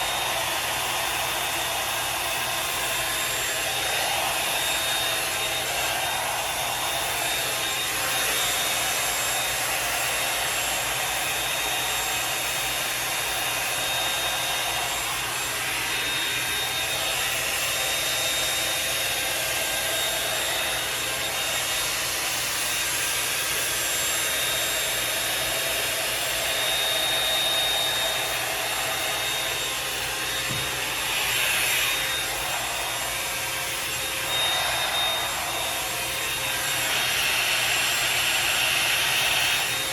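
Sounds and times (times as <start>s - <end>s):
bristles rasping through hair: 0.0s - 39.9s
hair dryer brush blowing with whine: 0.0s - 39.9s.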